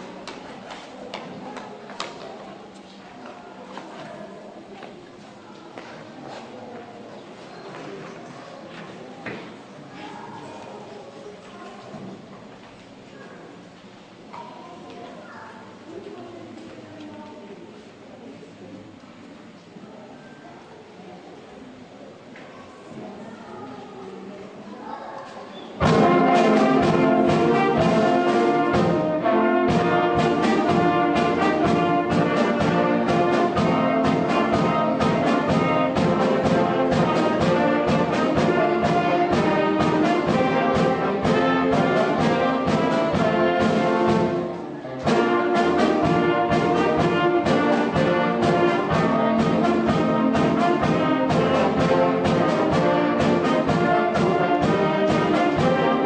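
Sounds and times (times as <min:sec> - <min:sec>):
concert band playing: 0:25.8 - 0:56.0.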